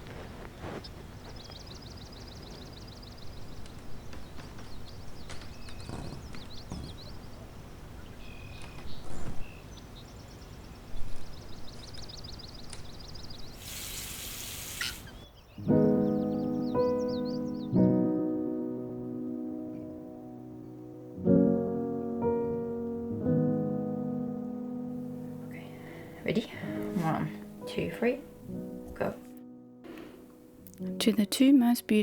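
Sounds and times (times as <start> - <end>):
birds trilling and chirping: 0.6 - 17.8
burst of hiss: 13.6 - 15.2.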